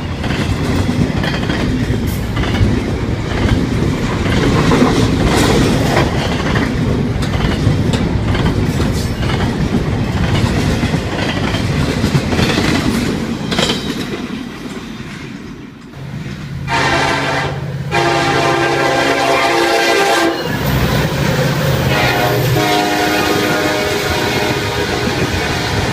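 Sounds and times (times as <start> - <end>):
train wheels clicking over rail joints: 0.0 - 16.6
locomotive air horn: 16.6 - 20.6, 21.8 - 25.9.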